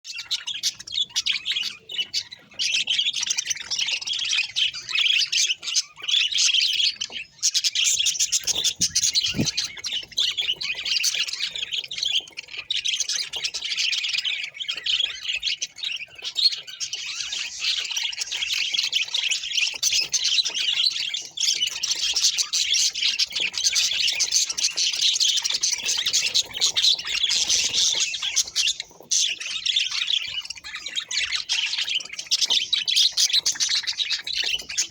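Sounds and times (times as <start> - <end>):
budgerigar chattering and warbling: 0.1 - 34.9.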